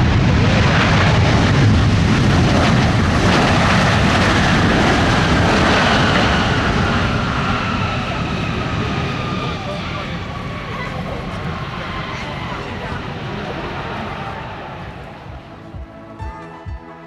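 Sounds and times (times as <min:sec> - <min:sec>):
jet engines roaring: 0:00.0 - 0:15.8
engine whine sliding down: 0:02.2 - 0:15.5.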